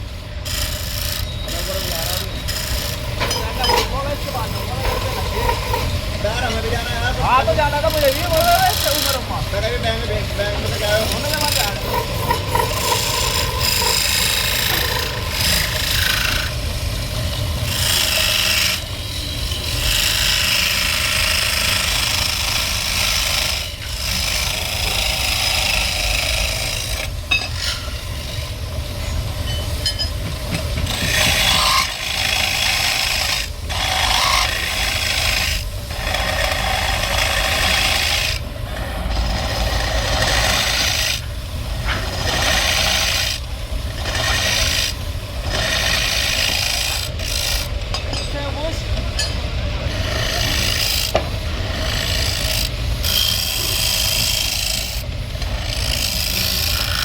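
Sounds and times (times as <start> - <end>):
tool scraping wood: 0.5 - 16.6, 30.3 - 47.7, 49.9 - 57.0.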